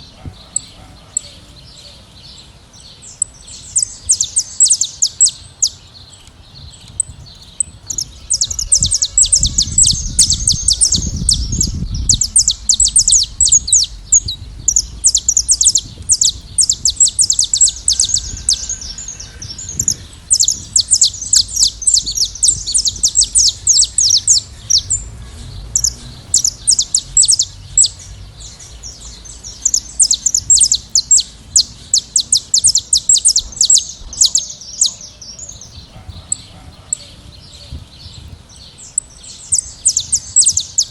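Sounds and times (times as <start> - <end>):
finches chirping: 0.0 - 40.9
low rumble: 6.6 - 32.5.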